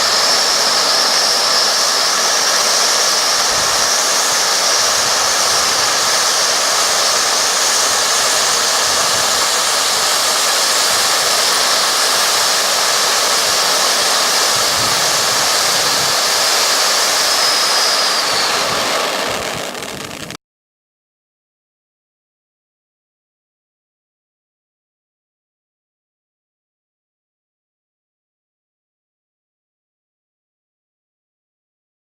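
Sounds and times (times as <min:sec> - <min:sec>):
firework fountain hissing: 0:00.0 - 0:20.4.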